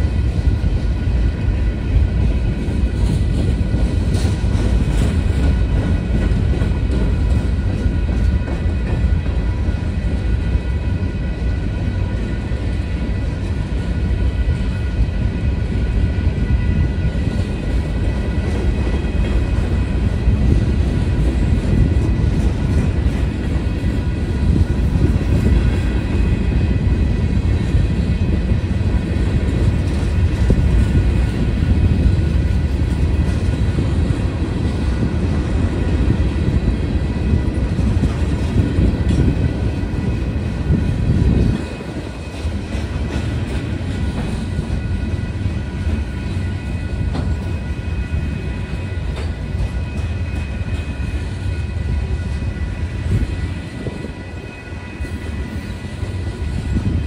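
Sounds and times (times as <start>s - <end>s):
freight train cars rumbling past: 0.0s - 57.0s.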